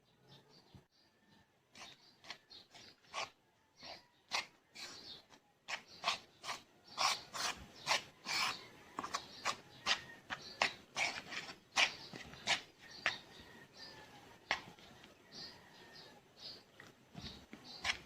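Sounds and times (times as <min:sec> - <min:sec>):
rubbing or scraping strokes: 0:01.7 - 0:13.3.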